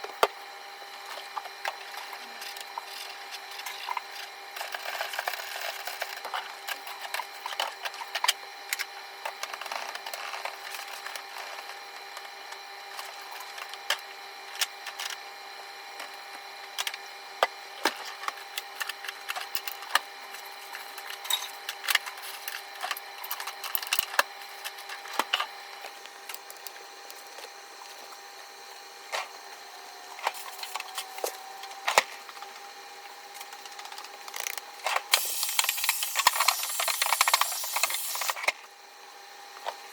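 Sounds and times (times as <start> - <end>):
steady hum: 16.0 - 39.9.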